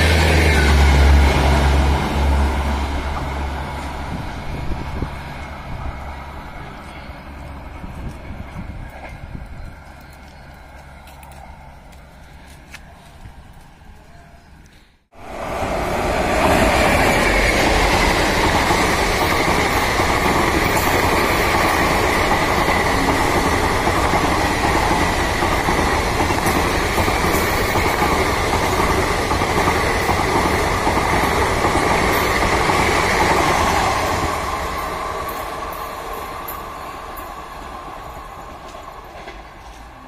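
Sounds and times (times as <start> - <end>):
train rushing past: 0.0 - 11.8, 15.1 - 40.0.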